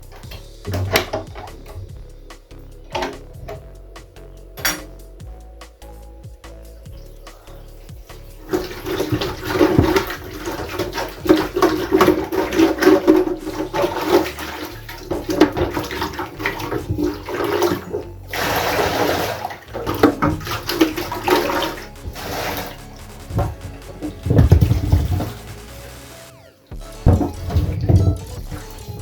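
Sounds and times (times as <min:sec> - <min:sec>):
tap water splashing into sink: 0:00.0 - 0:02.0, 0:02.9 - 0:03.6, 0:08.4 - 0:25.6, 0:27.1 - 0:28.7.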